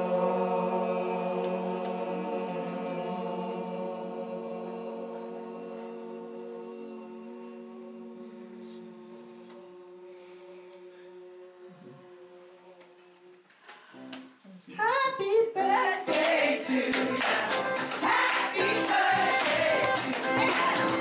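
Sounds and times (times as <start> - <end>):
group singing gospel song: 0.0 - 13.4, 15.6 - 21.0
tambourine shaking beat: 16.7 - 21.0.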